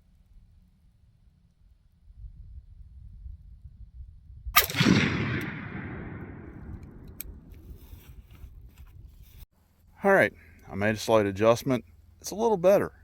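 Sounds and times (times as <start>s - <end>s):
gunshot with rolling echo: 4.6s - 7.5s.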